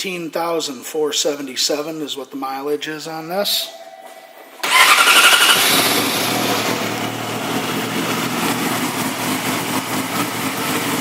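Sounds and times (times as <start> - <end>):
motorcycle engine revving and idling: 4.6 - 11.0.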